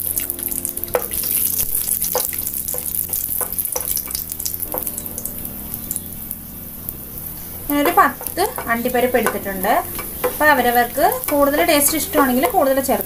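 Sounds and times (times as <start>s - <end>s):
nuts sizzling in hot fat: 0.0s - 13.0s
wooden spatula scraping a pan: 7.7s - 13.0s.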